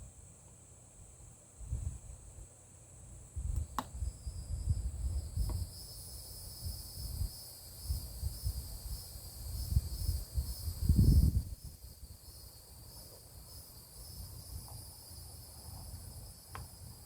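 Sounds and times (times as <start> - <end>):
crickets trilling: 0.0 - 17.0
sharp click: 3.6 - 4.0
pulsing insect layer: 3.9 - 17.0.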